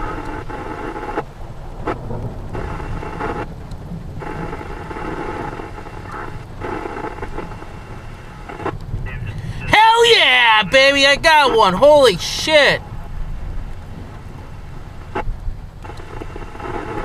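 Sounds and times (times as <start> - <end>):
steady rain: 0.0 - 17.0
thunder rumbling: 1.3 - 8.2
scanner radio hiss: 4.2 - 12.9, 14.2 - 17.0.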